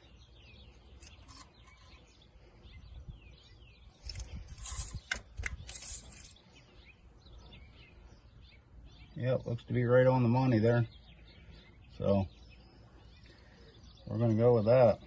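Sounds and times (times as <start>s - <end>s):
faint birds chirping: 0.0s - 15.0s
rustling and scraping: 0.6s - 2.3s, 3.9s - 6.6s.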